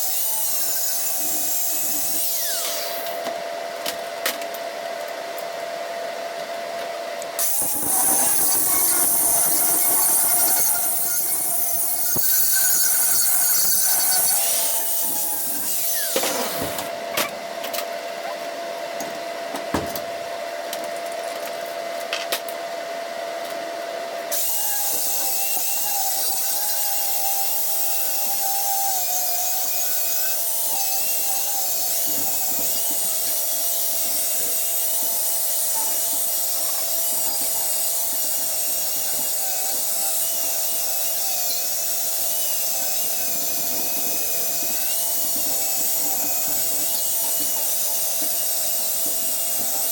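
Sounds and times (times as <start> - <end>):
power tool hissing and whining: 0.0 - 3.3, 7.4 - 16.9, 24.3 - 49.9.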